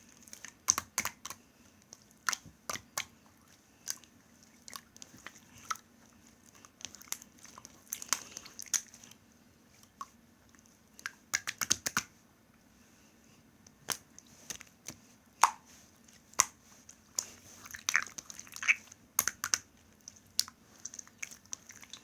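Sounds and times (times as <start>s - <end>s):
slime squished in hands: 6.5s - 9.1s, 13.8s - 22.0s.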